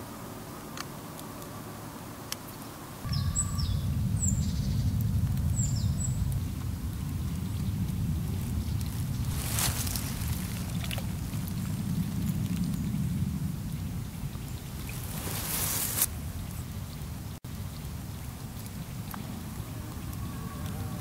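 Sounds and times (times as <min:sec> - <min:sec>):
small bird chirping: 0:02.4 - 0:07.8
low steady rumble: 0:03.0 - 0:21.0.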